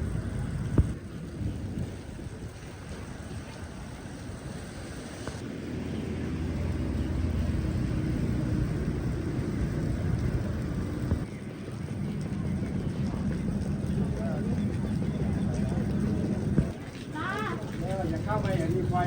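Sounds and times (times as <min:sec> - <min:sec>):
wind: 0:00.0 - 0:19.0
vehicle engine running: 0:03.1 - 0:16.7.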